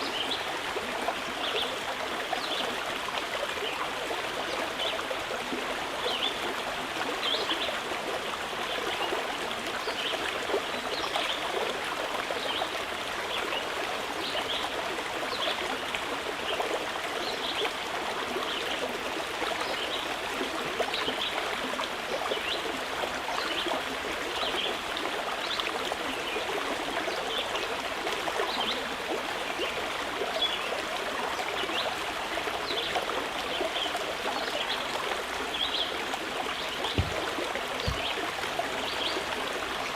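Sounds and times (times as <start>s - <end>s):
mountain river flowing: 0.0s - 39.9s.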